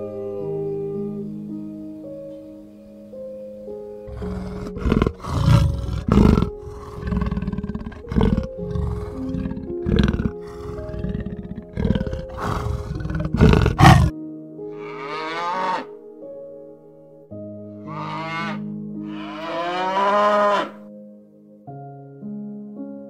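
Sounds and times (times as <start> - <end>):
soft piano music: 0.0 - 23.0
big cat growling and roaring: 4.1 - 14.1.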